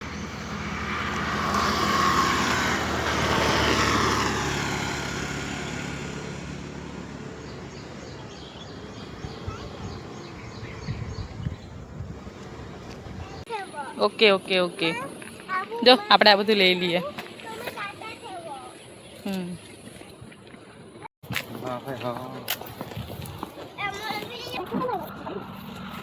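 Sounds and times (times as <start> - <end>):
vehicle passing by: 0.0 - 13.5.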